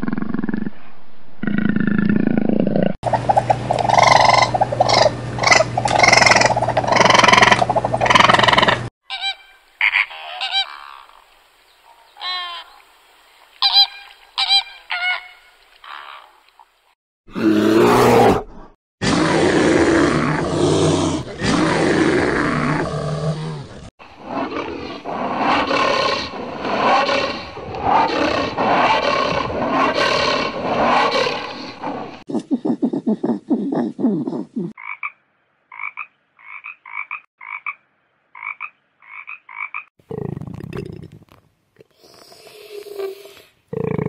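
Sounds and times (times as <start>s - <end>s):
animal croaking: 1.4s - 8.9s, 19.0s - 35.1s, 38.4s - 42.3s, 43.0s - 44.0s
rhythmic animal calls: 3.1s - 10.8s
deep roaring animal call: 17.3s - 32.2s.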